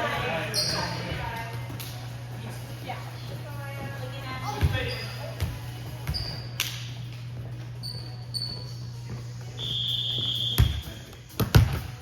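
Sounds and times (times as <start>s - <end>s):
sneakers squeaking: 0.0s - 12.0s
basketball bouncing: 4.5s - 6.5s, 10.2s - 12.0s.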